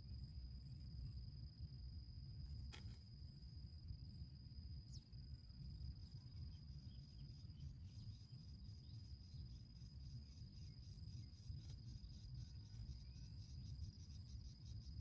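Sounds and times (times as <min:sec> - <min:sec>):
insect trilling: 0:06.3 - 0:15.0.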